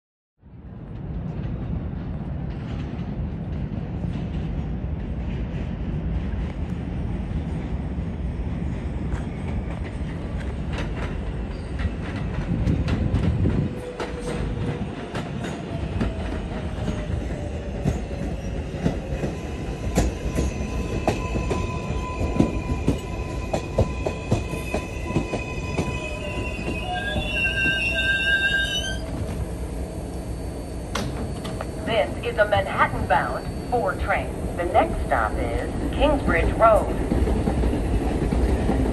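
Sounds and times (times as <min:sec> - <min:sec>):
subway train rumbling: 0:00.4 - 0:38.9
wheels squealing: 0:20.4 - 0:31.8.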